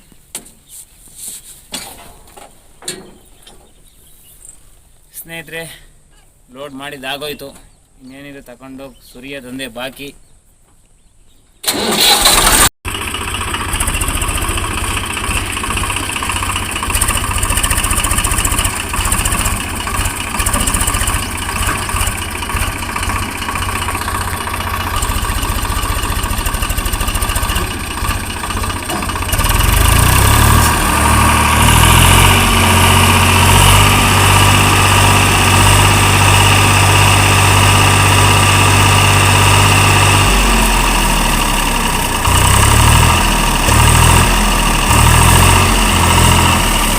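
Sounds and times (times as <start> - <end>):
diesel engine running and revving: 11.7 - 46.9.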